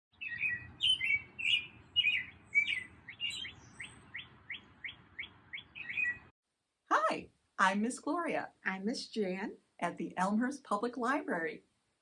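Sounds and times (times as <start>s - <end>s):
songbird chirping and singing: 0.1s - 6.3s.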